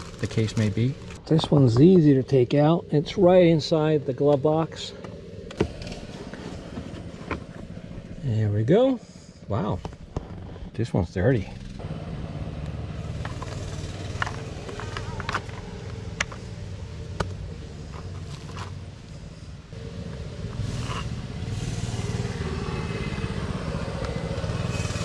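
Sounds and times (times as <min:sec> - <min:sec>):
hissing rush: 0:19.2 - 0:25.0.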